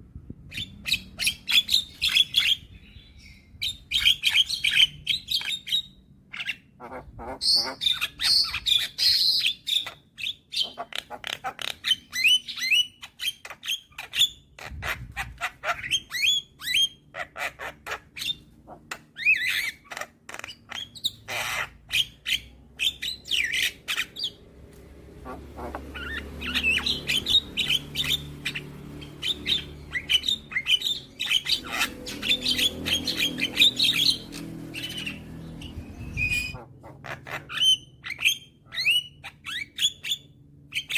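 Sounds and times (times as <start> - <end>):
myna calling: 25.2 - 28.3.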